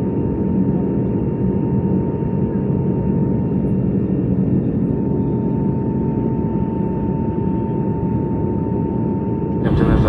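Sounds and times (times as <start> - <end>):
airplane cabin engine rumble: 9.6 - 10.0.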